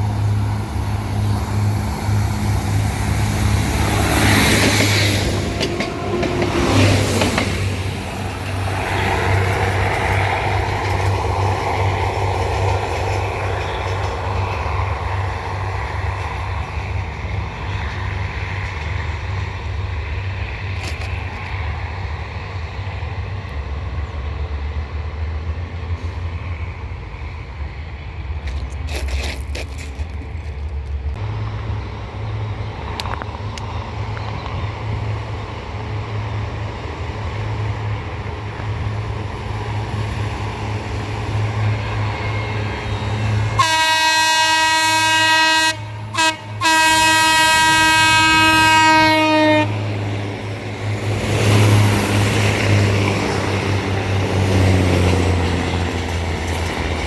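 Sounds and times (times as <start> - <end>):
locomotive horn blast: 43.5 - 50.0.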